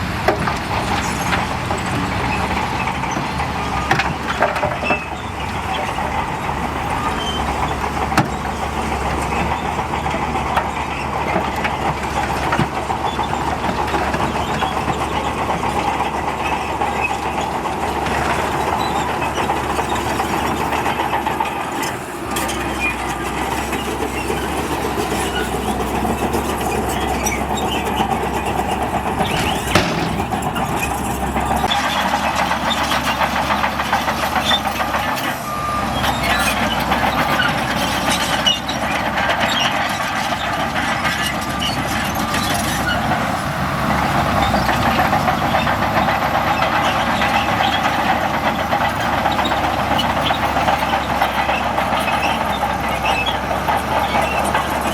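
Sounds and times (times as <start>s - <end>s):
diesel machinery running: 0.0s - 54.9s
sharp metallic knocks: 24.0s - 32.2s.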